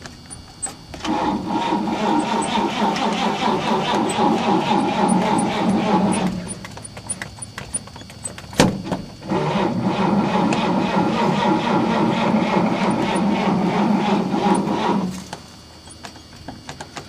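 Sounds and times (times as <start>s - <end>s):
engine cranking: 0.6s - 8.4s, 9.2s - 16.1s
starter clunk: 8.2s - 15.4s.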